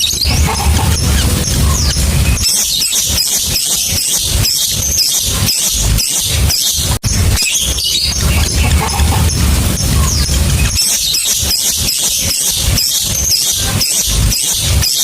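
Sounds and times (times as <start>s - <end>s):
low rumble: 0.0s - 3.5s, 7.0s - 11.9s
bird chattering shrill chirps: 0.0s - 15.0s.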